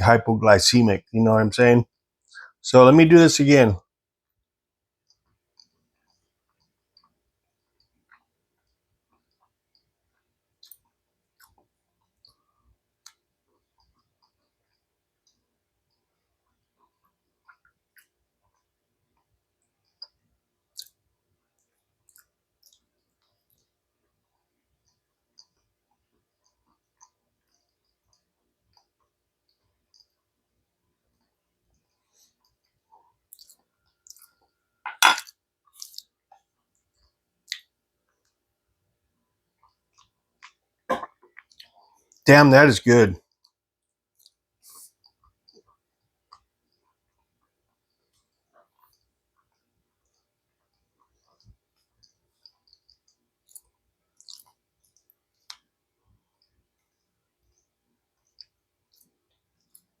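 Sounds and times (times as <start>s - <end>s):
lip smacks and tongue clicks: 5.0s - 12.4s, 13.0s - 30.3s, 31.2s - 34.5s, 35.7s - 38.4s, 39.6s - 42.2s, 43.3s - 55.8s, 56.4s - 60.0s
person eating wet mouth sounds: 5.1s - 12.4s, 13.0s - 21.0s, 31.8s - 38.2s, 44.2s - 55.7s.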